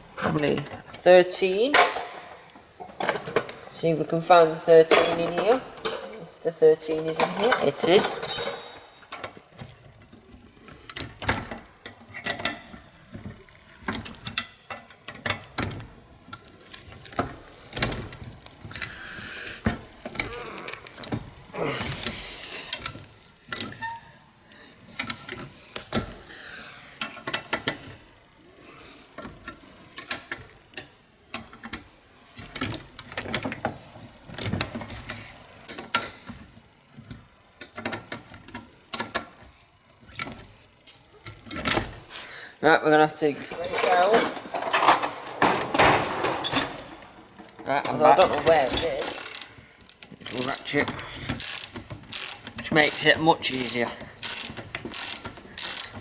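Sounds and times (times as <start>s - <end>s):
metal tools clinking in toolbox: 1.6s - 4.1s, 4.7s - 10.1s, 43.4s - 56.0s.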